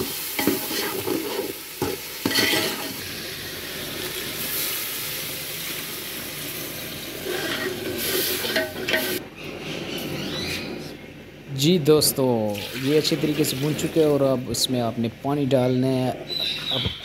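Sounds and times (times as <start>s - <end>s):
food sizzling in oil: 0.0s - 9.2s
metal ladle scraping pot: 7.2s - 9.2s.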